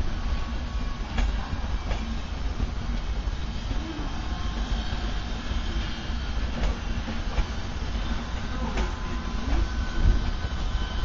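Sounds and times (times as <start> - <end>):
wheels clicking over rail joints: 0.0 - 3.8, 6.4 - 11.0
train wheels rumbling on rail: 0.0 - 11.0.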